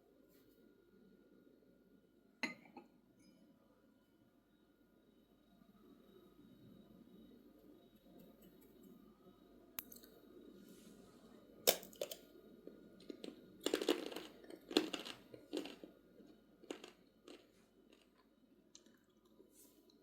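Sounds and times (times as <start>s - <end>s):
crisp crunches and crackles: 13.0s - 18.2s.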